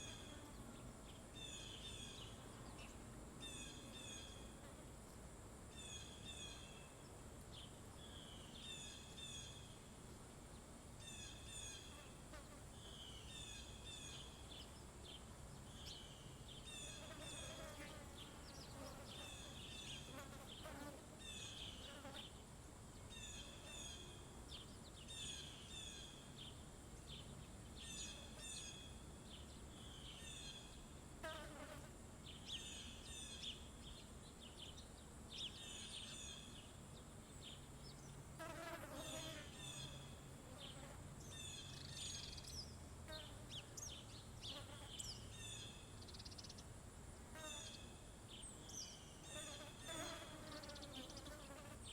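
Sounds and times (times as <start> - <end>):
high insect drone: 0.0 - 5.0
small birds chirping: 32.3 - 46.7.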